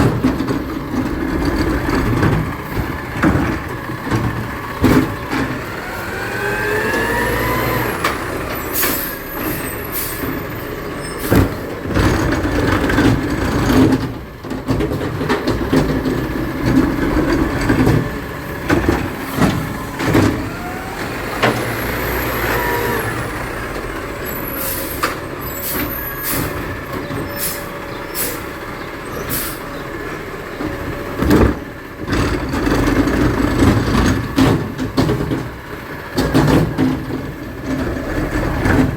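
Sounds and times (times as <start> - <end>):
garbage truck engine whine: 0.0 - 38.9.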